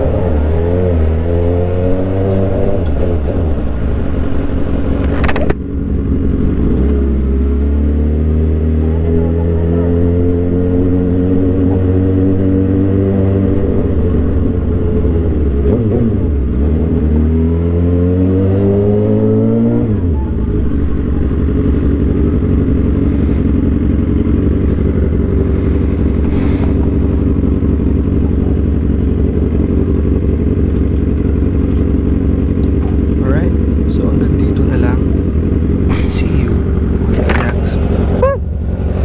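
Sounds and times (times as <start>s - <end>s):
low engine rumble: 0.0s - 17.8s, 18.5s - 39.0s
motorcycle engine accelerating: 0.0s - 39.0s.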